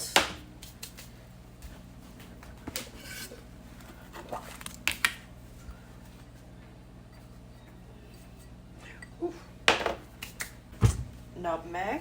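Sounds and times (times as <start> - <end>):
kitchen clicks and knocks: 9.7 - 10.0.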